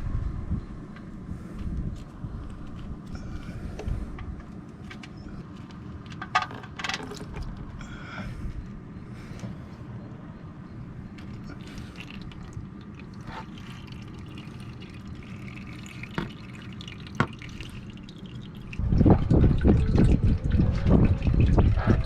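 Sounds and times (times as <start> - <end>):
oil trickling: 2.0 - 8.2, 11.0 - 22.0.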